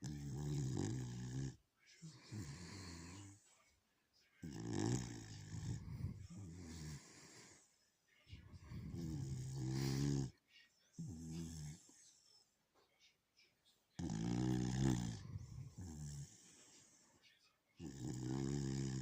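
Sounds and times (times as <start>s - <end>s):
dog snoring: 0.0s - 3.5s, 4.4s - 7.6s, 8.3s - 10.4s, 11.0s - 12.0s, 14.0s - 17.0s, 17.8s - 19.0s.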